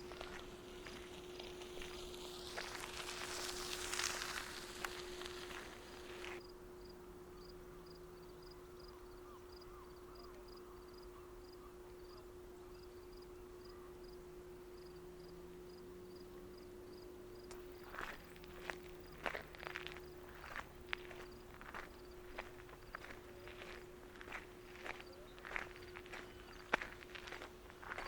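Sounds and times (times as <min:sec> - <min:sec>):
footsteps on trail: 0:00.0 - 0:06.4, 0:17.5 - 0:28.0
faint cricket chirping: 0:00.0 - 0:28.0.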